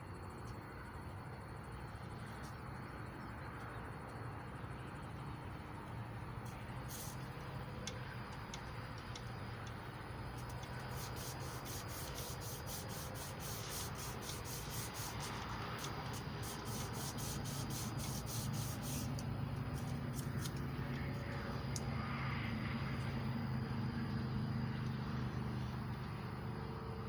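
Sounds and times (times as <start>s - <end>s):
emery cloth rubbing on metal: 10.8s - 20.5s.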